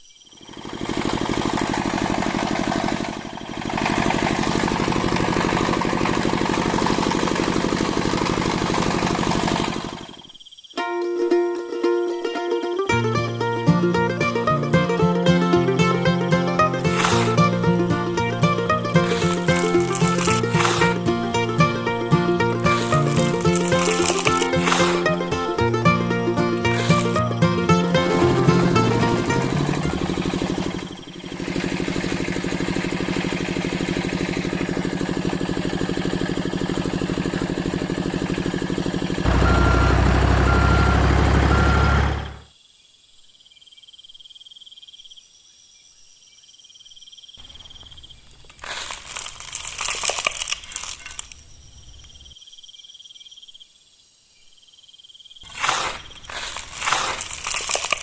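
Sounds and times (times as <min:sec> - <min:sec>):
engine running: 0:00.6 - 0:10.1, 0:12.9 - 0:42.5
rustling crunching noise: 0:48.4 - 0:51.4.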